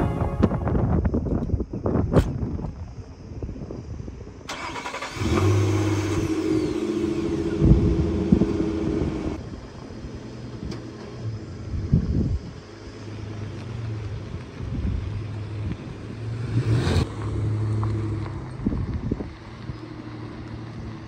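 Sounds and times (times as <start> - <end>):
car engine idling and pulling away: 4.2 - 21.0.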